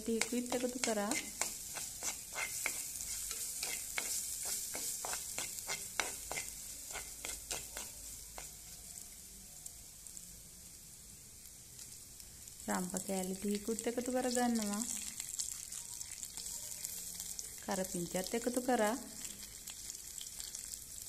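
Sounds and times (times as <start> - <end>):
spatula scraping and knocking pot: 0.0 - 8.6
spices sizzling in hot oil: 0.0 - 21.0.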